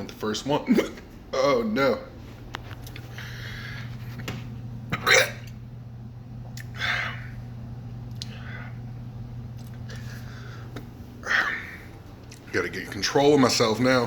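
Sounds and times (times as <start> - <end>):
steady low hum: 0.0 - 14.0
man hiccuping: 4.9 - 5.6.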